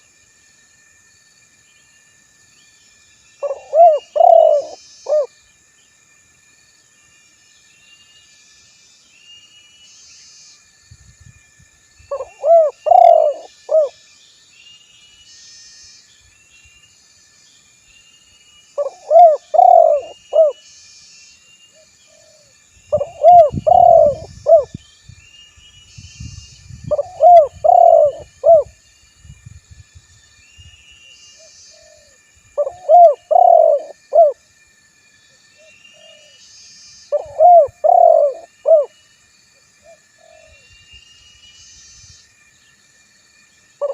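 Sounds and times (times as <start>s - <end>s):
faint high twittering: 0.9s - 43.9s
dove cooing: 3.4s - 5.3s, 12.1s - 13.9s, 18.8s - 20.6s, 22.2s - 24.8s, 26.9s - 28.7s, 31.8s - 34.4s, 37.1s - 38.9s.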